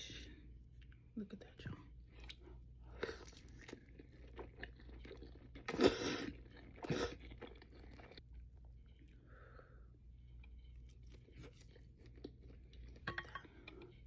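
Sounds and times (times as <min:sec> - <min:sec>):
wet chewing: 0:02.1 - 0:09.2, 0:10.2 - 0:14.0.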